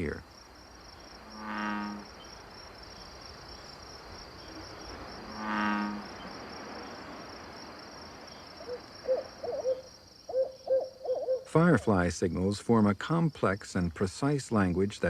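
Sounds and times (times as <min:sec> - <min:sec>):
crickets trilling: 0:00.0 - 0:15.0
owl hooting: 0:08.6 - 0:11.5.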